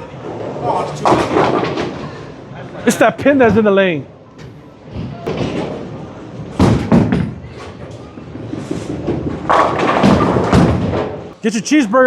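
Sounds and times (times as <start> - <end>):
bowling balls rolling: 0.1 - 2.3, 3.0 - 11.4
bowling balls hitting pins: 1.0 - 2.1, 4.9 - 11.3
loud knocks: 6.5 - 7.4.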